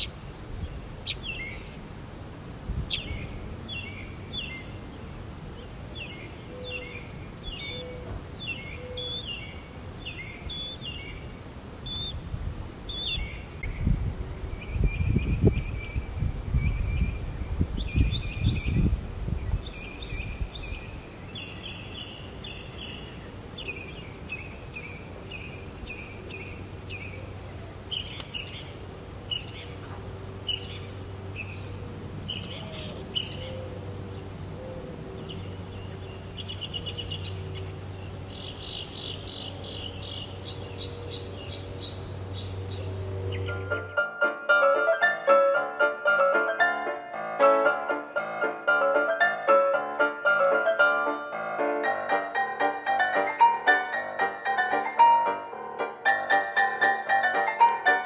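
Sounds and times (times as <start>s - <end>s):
songbirds chirping and trilling: 0.0s - 2.0s, 2.7s - 44.1s.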